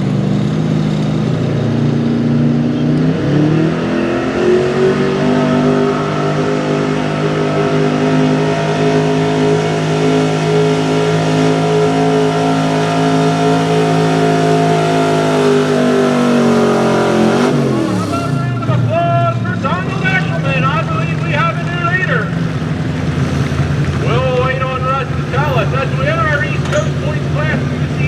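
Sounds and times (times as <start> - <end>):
truck engine revving under load: 0.0 - 28.0.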